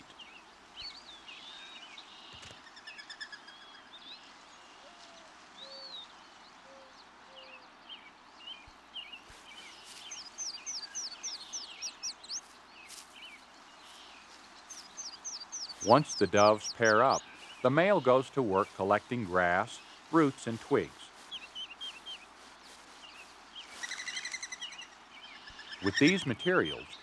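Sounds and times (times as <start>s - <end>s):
songbirds chirping: 0.0s - 27.0s
songbird high falling notes: 14.8s - 17.2s
dove cooing: 15.8s - 17.2s.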